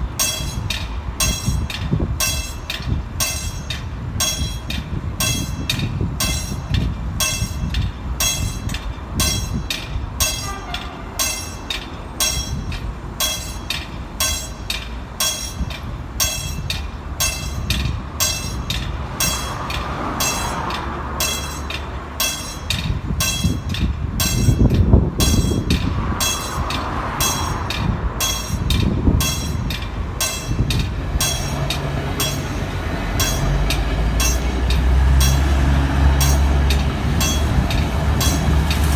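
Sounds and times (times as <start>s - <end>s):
train wheels clicking over rail joints: 0.0s - 38.9s
low engine hum: 16.9s - 38.9s.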